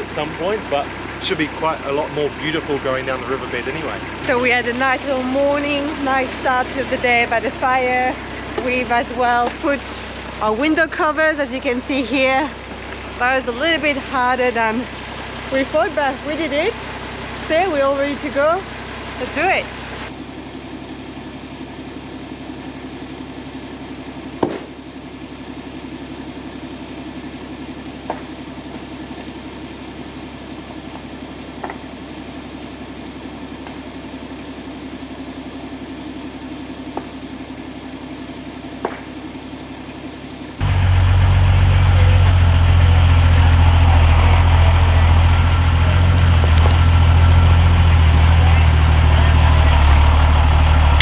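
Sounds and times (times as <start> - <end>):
diesel truck engine running: 0.0 - 24.2, 40.6 - 51.0.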